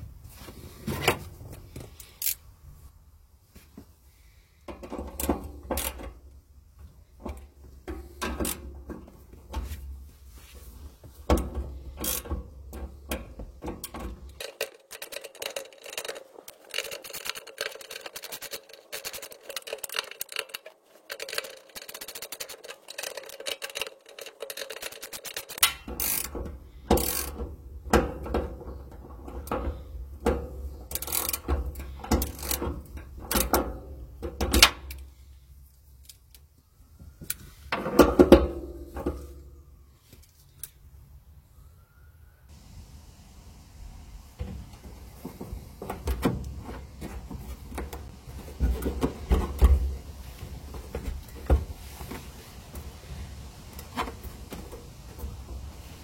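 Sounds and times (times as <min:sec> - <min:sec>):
mechanical clicks and clunks: 0:11.3 - 0:35.0.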